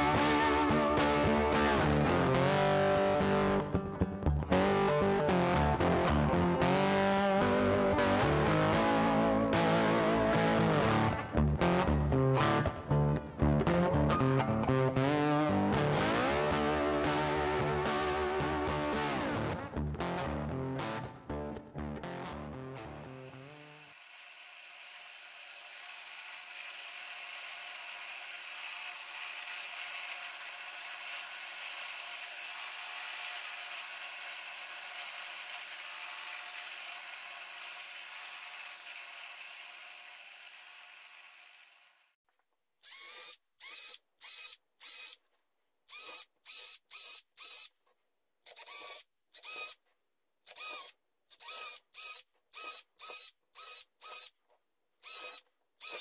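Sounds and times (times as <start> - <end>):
drill press boring wood: 22.8 - 42.2, 42.8 - 45.2, 45.9 - 47.7, 48.5 - 49.8, 50.5 - 54.4, 55.0 - 56.0
cordless drill whirring in bursts: 23.0 - 42.0, 42.8 - 45.2, 45.9 - 47.7, 48.5 - 49.8, 50.5 - 54.4, 55.0 - 56.0.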